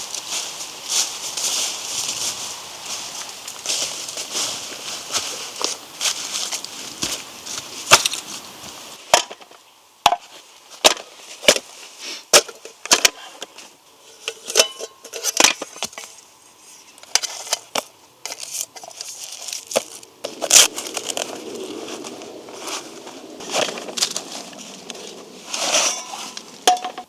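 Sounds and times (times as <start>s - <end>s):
dry firewood cracking and snapping: 18.4s - 25.2s
steady rushing noise: 20.0s - 26.7s.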